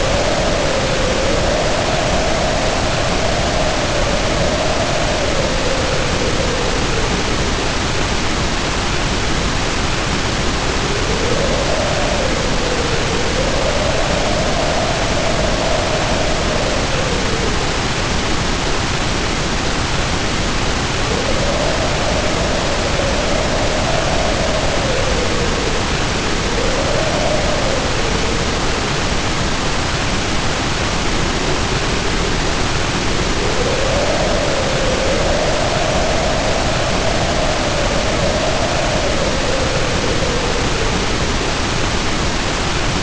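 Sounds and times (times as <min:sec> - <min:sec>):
heavy rain hissing: 0:00.0 - 0:43.0
howling wind: 0:00.0 - 0:43.0.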